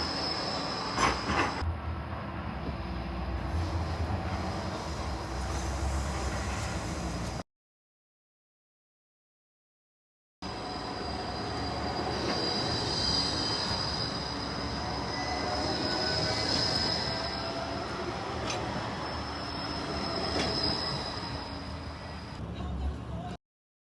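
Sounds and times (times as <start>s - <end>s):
tram wheels squealing on rails: 0.0s - 1.6s, 10.4s - 22.4s
tram rumbling: 0.0s - 7.4s, 10.4s - 22.5s.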